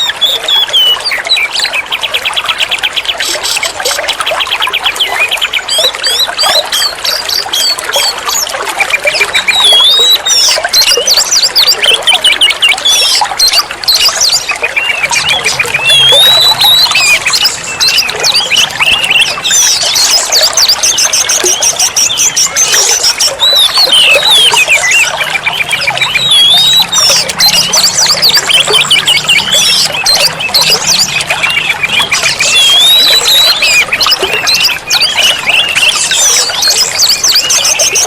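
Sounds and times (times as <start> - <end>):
songbird singing whistles and trills: 0.0 - 38.0.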